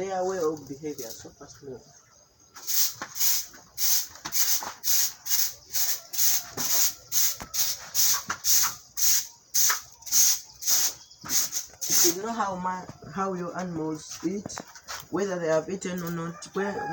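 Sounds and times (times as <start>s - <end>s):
stiff brush sweeping: 2.6s - 12.6s.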